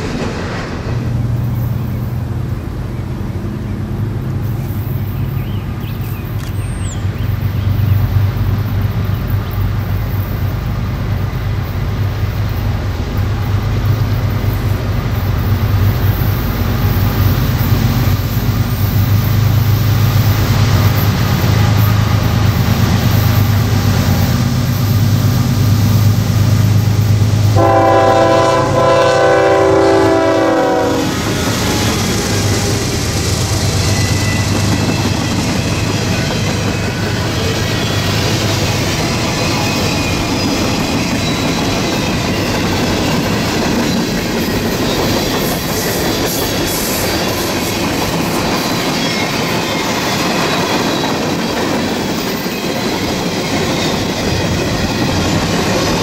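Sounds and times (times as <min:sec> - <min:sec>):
locomotive engine rumble: 0:00.0 - 0:56.0
train horn blast: 0:27.5 - 0:31.4.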